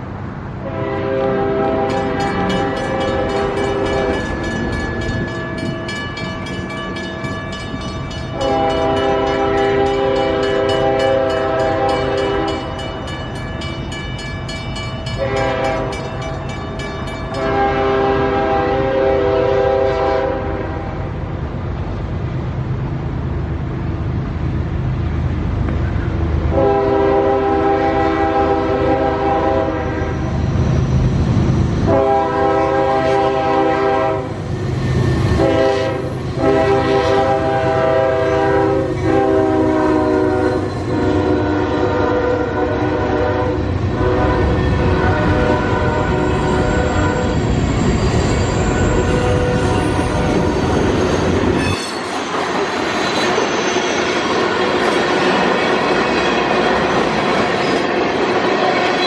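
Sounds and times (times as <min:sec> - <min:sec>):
locomotive and rolling train rumble: 0:00.0 - 0:59.0
locomotive air horn blasts: 0:00.6 - 0:04.3, 0:08.3 - 0:12.8, 0:15.2 - 0:16.2, 0:17.3 - 0:21.1, 0:26.5 - 0:30.2, 0:31.8 - 0:34.4, 0:35.2 - 0:47.6, 0:48.6 - 0:50.5.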